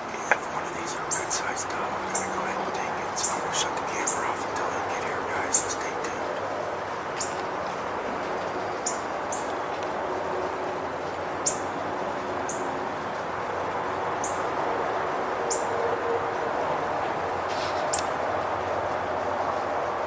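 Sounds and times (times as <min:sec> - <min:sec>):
background hiss: 0:00.0 - 0:15.6, 0:16.6 - 0:20.0
small bird chirping: 0:07.2 - 0:07.4, 0:08.6 - 0:09.5.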